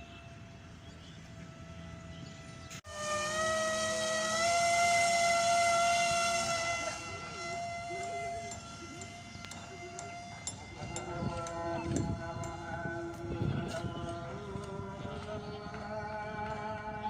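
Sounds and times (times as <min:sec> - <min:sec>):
model plane motor whining: 0:01.3 - 0:14.8.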